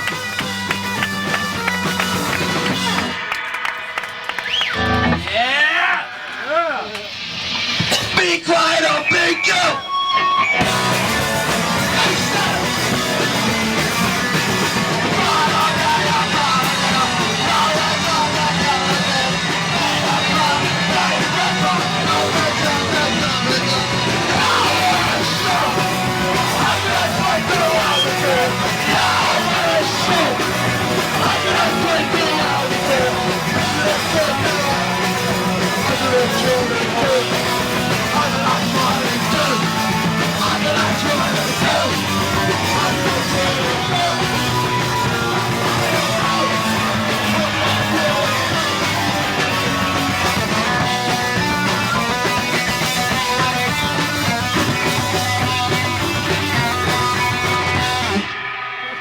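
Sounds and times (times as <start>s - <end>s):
punk band playing live: 0.0s - 59.0s
shouted vocals: 4.4s - 7.0s, 8.1s - 52.0s.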